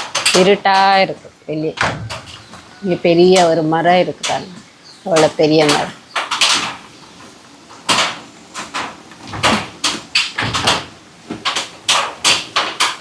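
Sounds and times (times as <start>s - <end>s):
sharp knocks and clatters: 1.8s - 3.6s, 5.1s - 13.0s.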